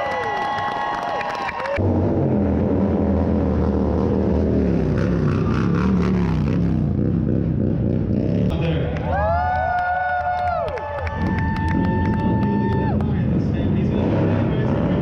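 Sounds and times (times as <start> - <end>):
motorcycle engine revving: 1.8 - 8.8, 11.2 - 15.0.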